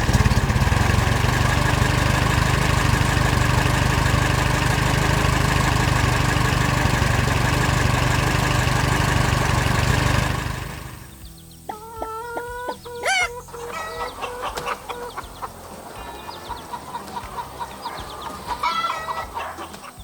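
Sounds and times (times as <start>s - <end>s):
chickens clucking: 0.0s - 20.0s
quiet background music: 11.1s - 20.0s.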